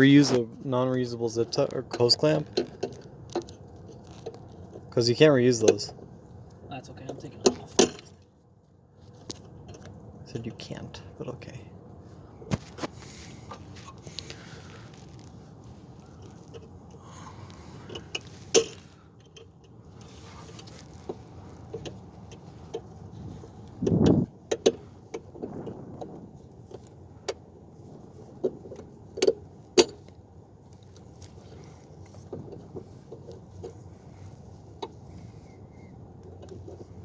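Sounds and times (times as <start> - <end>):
metal tools clinking: 7.5 - 8.2, 17.8 - 19.5
short low rumble: 25.3 - 26.6.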